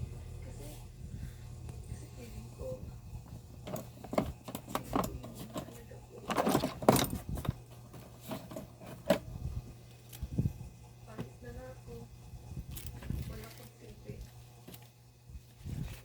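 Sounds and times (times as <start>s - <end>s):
small parts and tools handled: 3.2s - 10.4s, 12.5s - 15.0s
rattling scrape: 3.6s - 9.3s.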